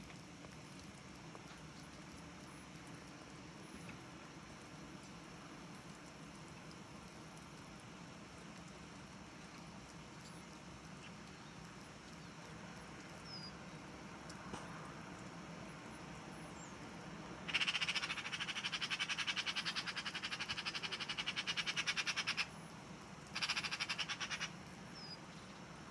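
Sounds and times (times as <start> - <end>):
faint high bird chirps: 13.2 - 14.1, 23.4 - 25.7
bird rattling chatter: 23.4 - 24.5.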